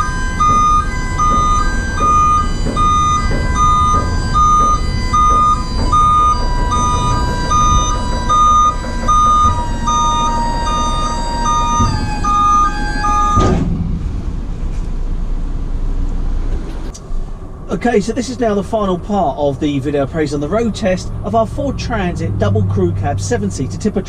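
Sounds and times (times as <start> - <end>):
electronic beeping: 0.0 - 13.6
held electronic tone: 0.0 - 13.6
low rumble: 0.0 - 24.0.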